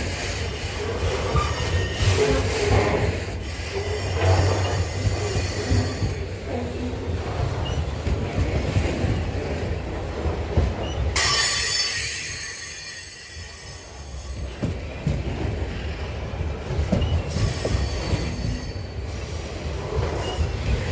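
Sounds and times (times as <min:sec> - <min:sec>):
freight train rolling on rails: 0:00.0 - 0:20.9
wheels squealing against rails: 0:01.0 - 0:06.4, 0:10.8 - 0:14.7, 0:16.8 - 0:20.9.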